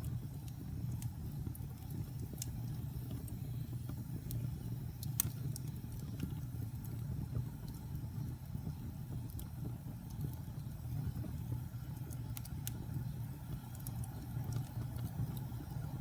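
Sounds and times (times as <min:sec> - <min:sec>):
fire low rumble: 0:00.0 - 0:16.0
wood fire crackling and popping: 0:00.0 - 0:16.0.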